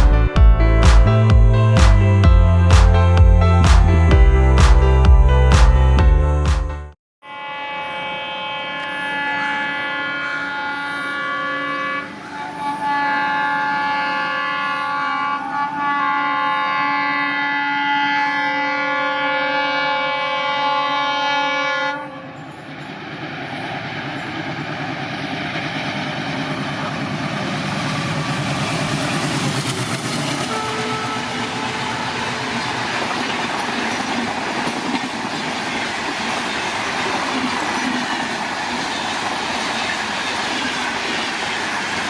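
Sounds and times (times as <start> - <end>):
locomotive horn blasts: 7.2 - 22.4, 30.4 - 32.7
train rushing and rail clatter: 22.0 - 42.0.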